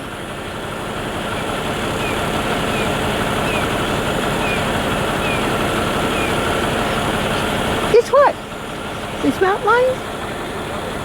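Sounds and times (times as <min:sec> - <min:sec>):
bird chirping: 0:01.3 - 0:10.0.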